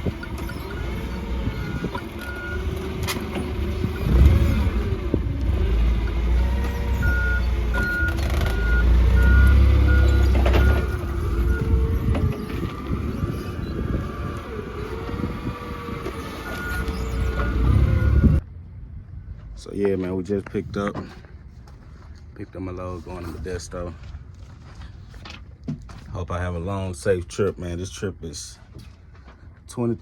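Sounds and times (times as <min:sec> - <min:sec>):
vehicle backup alarm beeping: 0:00.0 - 0:04.2, 0:06.7 - 0:13.9, 0:16.2 - 0:18.4
heavy engine rumble: 0:00.0 - 0:29.9.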